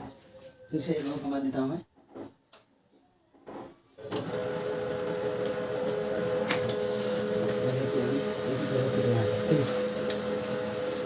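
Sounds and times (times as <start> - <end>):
laser printer running: 4.1 - 11.0.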